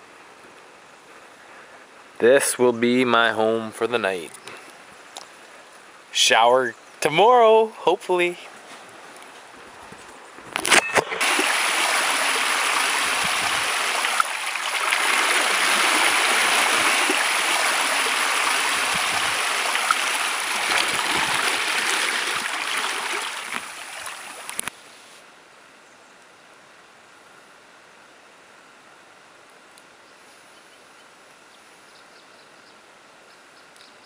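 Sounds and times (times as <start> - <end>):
running water: 10.6 - 24.7.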